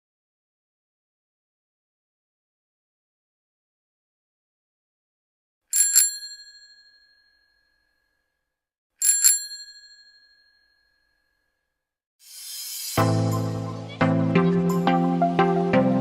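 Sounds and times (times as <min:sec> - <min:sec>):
bicycle bell ringing: 0:05.7 - 0:08.1, 0:09.0 - 0:11.5
rising whoosh: 0:12.2 - 0:13.7.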